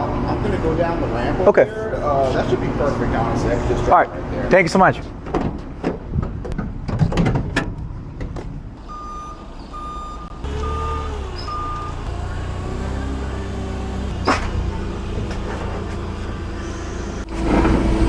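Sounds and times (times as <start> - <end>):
short electronic beeps: 8.9 - 12.6
vehicle engine running: 10.3 - 18.0.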